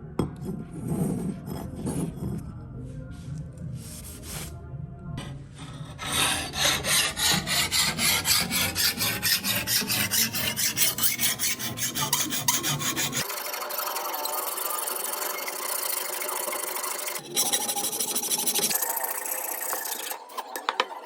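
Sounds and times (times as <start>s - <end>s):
scissor blade scraping on abrasive: 6.0s - 13.3s.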